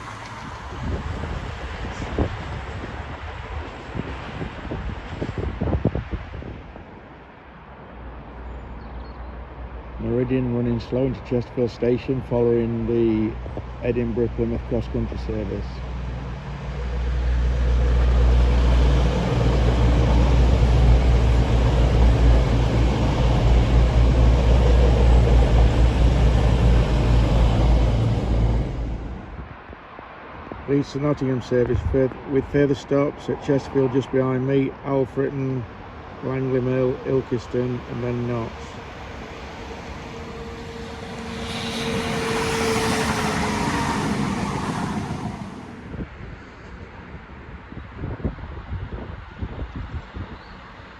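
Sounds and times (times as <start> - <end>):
diesel engine hum: 9.5 - 29.6, 33.2 - 46.4
train running noise: 9.8 - 29.6, 35.9 - 46.8.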